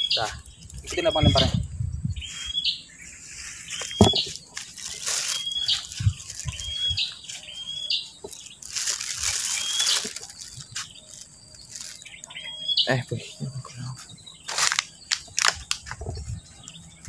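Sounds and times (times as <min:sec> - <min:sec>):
bird calling: 0:00.0 - 0:17.0
rustling and handling noise: 0:03.3 - 0:12.4, 0:14.0 - 0:16.3.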